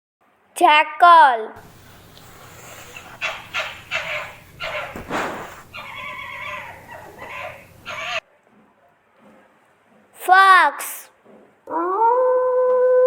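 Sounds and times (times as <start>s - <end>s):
jackal yipping and whining: 1.6s - 8.2s.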